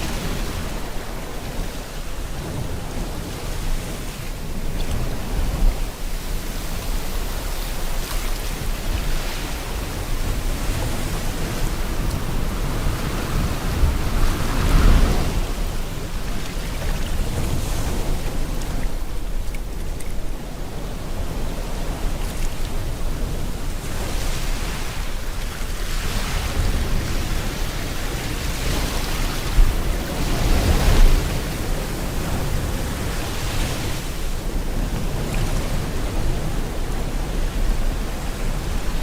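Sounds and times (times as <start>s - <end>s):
sea waves washing in: 0.0s - 39.0s.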